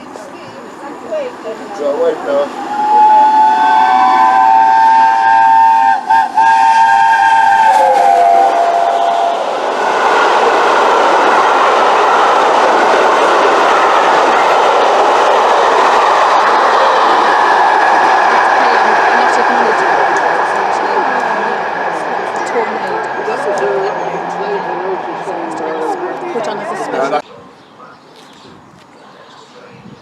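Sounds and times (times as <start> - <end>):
train rushing past: 0.0 - 29.3
steam locomotive whistle: 2.4 - 10.5.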